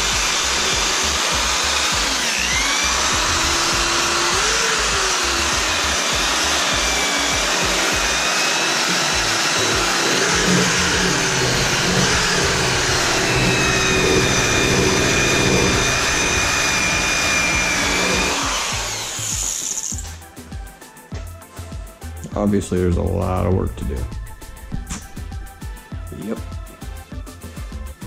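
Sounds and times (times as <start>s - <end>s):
power tool motor whine: 0.0s - 20.3s.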